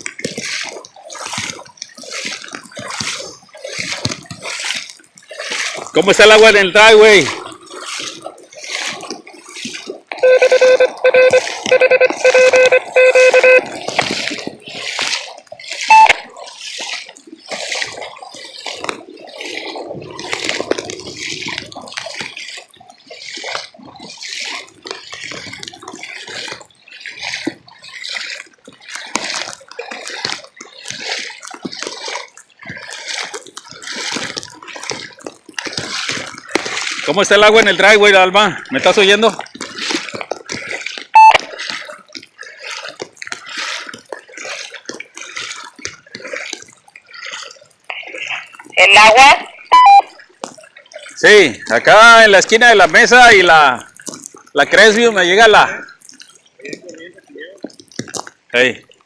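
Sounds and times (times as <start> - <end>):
splashing rushing water: 0.0 - 59.0
loud electronic tone pulsing: 10.2 - 13.8.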